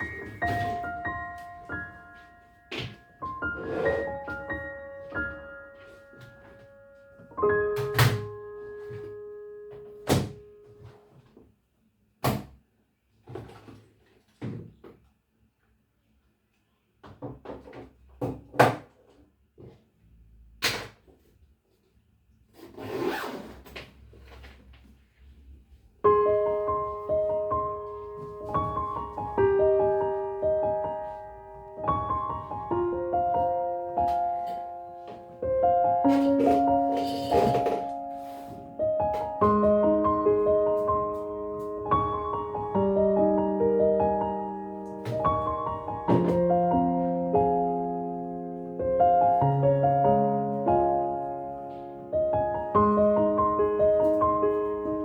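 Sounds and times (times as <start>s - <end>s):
slow soft piano melody: 0.0s - 11.3s, 26.0s - 55.0s.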